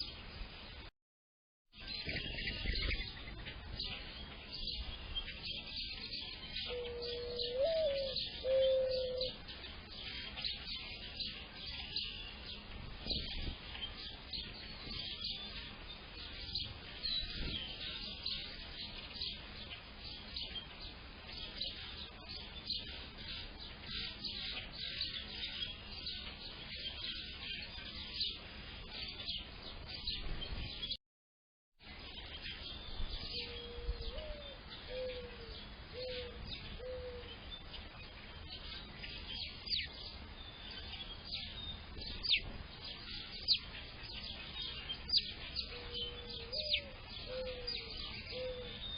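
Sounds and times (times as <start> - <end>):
songbirds chirping and twittering: 0.0 - 0.9, 1.7 - 31.0, 31.8 - 48.9
dove cooing: 6.6 - 9.4, 33.3 - 37.3, 45.7 - 48.9.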